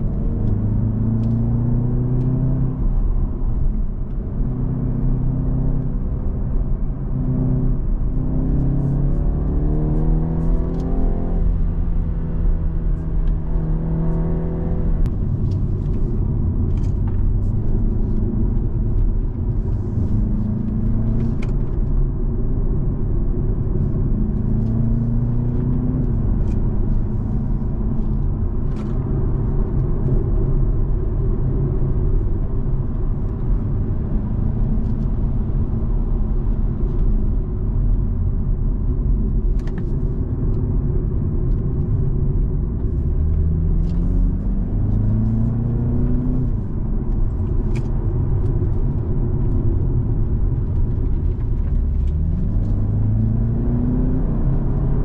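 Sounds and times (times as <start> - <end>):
car engine from inside cabin: 0.0 - 55.0
road rumble: 0.0 - 55.0.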